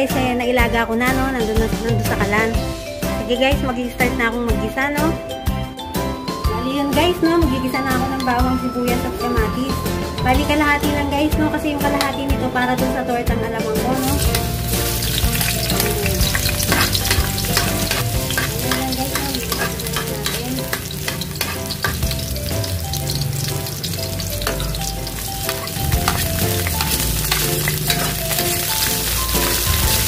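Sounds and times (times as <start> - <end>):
vegetables sizzling in oil: 14.0 - 30.0.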